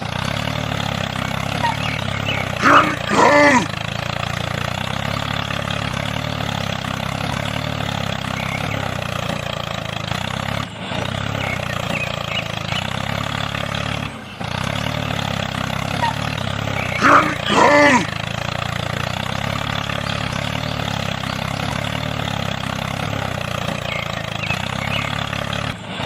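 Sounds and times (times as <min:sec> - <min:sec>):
small motor humming: 0:00.0 - 0:26.0
short voice-like call: 0:01.6 - 0:03.8, 0:16.8 - 0:18.2.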